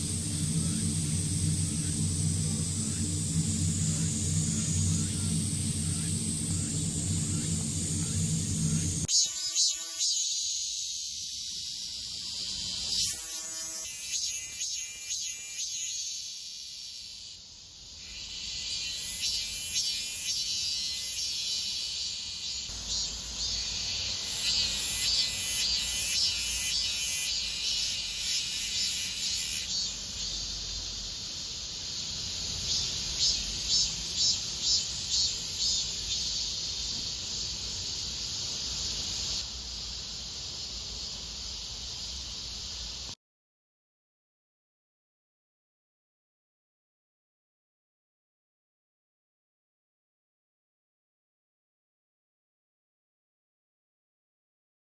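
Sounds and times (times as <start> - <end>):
cicada buzzing: 0.0 - 43.2.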